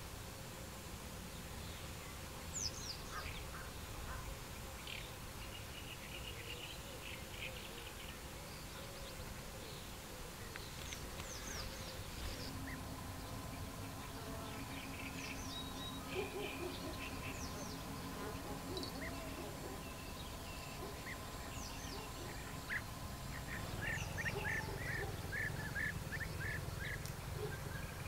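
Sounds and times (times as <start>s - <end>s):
small birds singing and chirping: 1.2s - 28.0s
low steady rumble: 11.0s - 28.0s.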